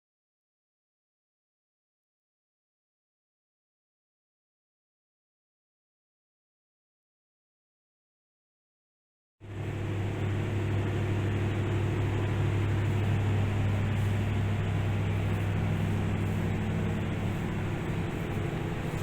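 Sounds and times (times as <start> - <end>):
large diesel engine running: 9.4 - 19.0.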